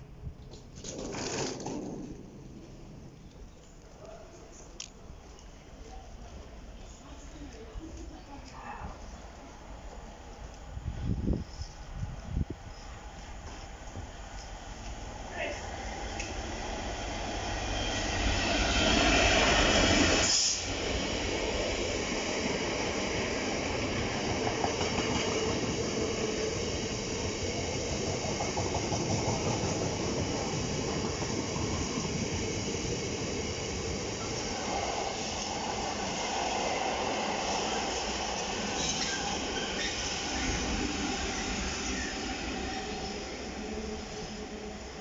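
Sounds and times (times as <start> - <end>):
freight wagons rolling and clattering: 0.7 - 2.3
diesel locomotive passing: 9.0 - 45.0.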